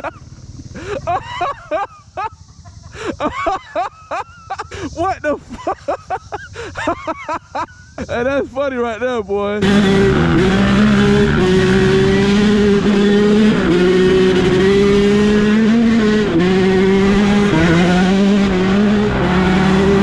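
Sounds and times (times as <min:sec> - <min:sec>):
dirt bike engine revving high: 0:09.6 - 0:20.0.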